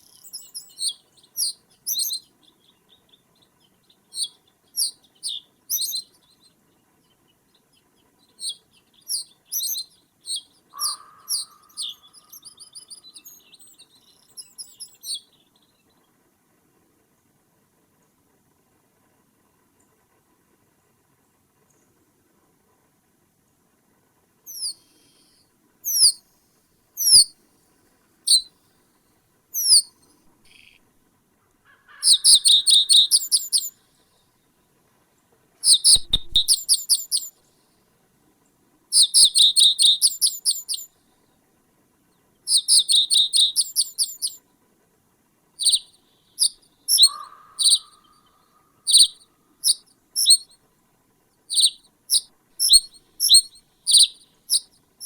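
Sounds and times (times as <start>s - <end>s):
bird singing: 0.0s - 16.0s, 24.5s - 26.2s, 27.0s - 27.3s, 28.3s - 28.5s, 29.6s - 30.8s, 31.9s - 33.8s, 35.6s - 37.4s, 38.9s - 40.9s, 42.5s - 44.4s, 45.6s - 50.6s, 51.5s - 54.7s.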